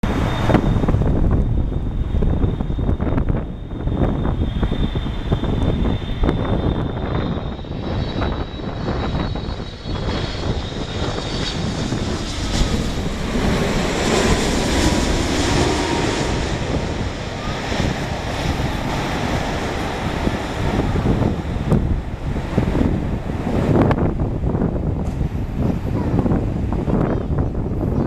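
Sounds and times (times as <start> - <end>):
jet airliner engine noise: 0.0 - 28.0.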